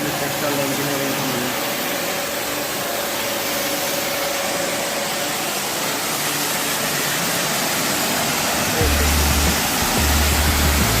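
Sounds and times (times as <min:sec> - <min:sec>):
pressure washer spraying: 0:00.0 - 0:11.0.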